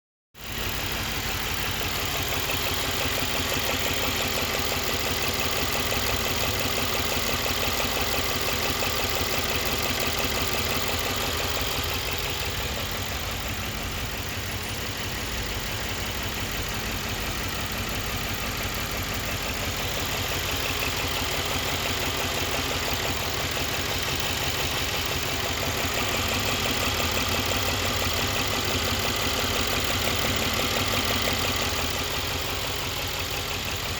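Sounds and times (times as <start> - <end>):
car engine idling with ticking: 0.4 - 33.9.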